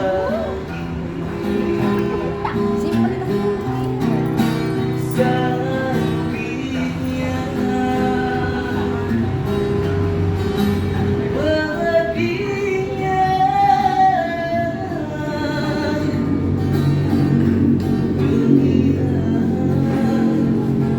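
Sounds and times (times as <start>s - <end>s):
person singing: 0.0s - 0.8s
acoustic guitar: 0.0s - 20.9s.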